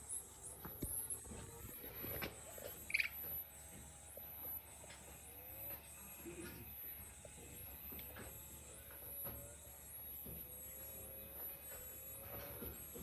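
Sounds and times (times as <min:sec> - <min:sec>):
high-pitched animal calls: 0:02.8 - 0:03.3.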